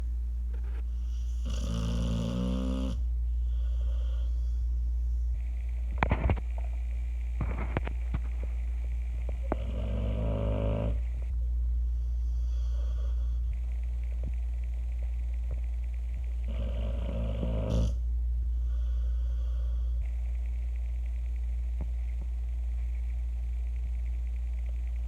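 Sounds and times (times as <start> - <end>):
steady low hum: 0.0 - 25.0
dog snoring: 0.9 - 4.6, 9.3 - 11.4, 12.0 - 18.0.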